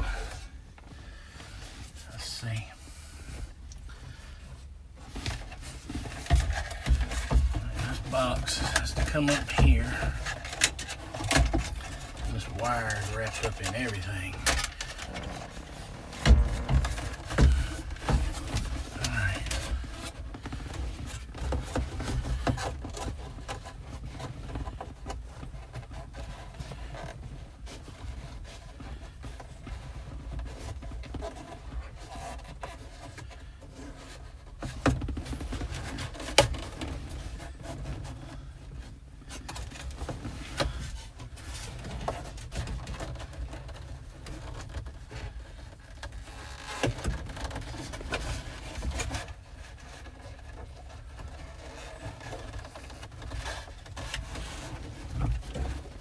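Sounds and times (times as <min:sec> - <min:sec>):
hoses and wiring scraping: 0:00.0 - 0:56.0
small knocks: 0:05.2 - 0:22.7.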